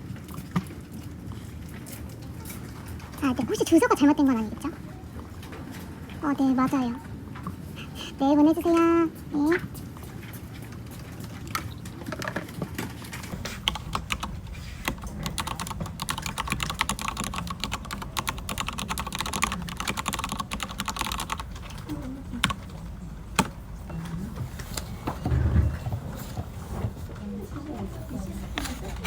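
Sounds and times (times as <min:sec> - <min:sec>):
typing on keyboard: 0:13.2 - 0:23.6.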